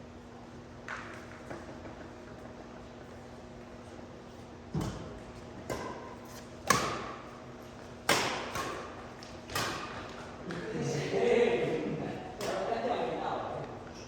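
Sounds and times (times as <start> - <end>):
rackets striking shuttlecock: 4.8 - 10.6, 12.4 - 12.7.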